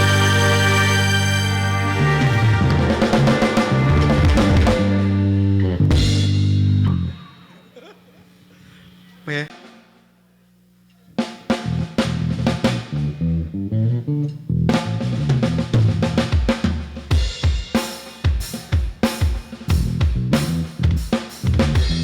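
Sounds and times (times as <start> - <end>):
stepping bass line: 0.0 - 7.1, 19.7 - 22.0
drum kit kick and snare: 2.4 - 5.2, 5.9 - 7.1, 14.8 - 22.0.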